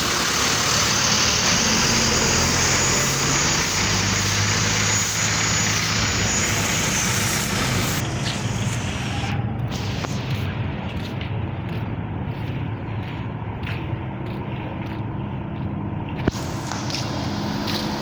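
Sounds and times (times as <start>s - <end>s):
truck diesel engine running: 0.0s - 18.0s
thin high whine: 1.5s - 10.6s.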